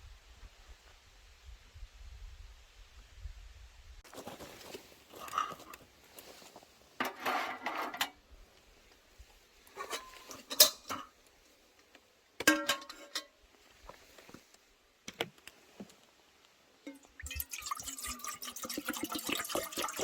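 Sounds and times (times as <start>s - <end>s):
dishes and utensils clinking: 9.7s - 11.1s, 12.4s - 13.4s.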